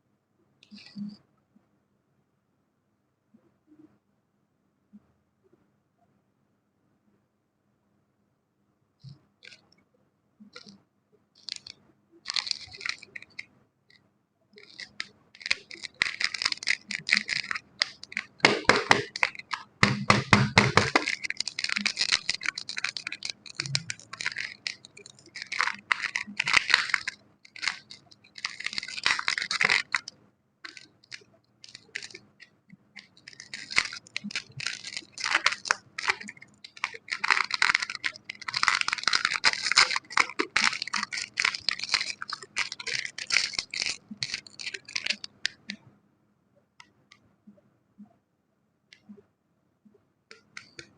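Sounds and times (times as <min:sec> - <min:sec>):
scratching crinkling and tearing: 0:11.4 - 0:13.5, 0:14.6 - 0:45.8.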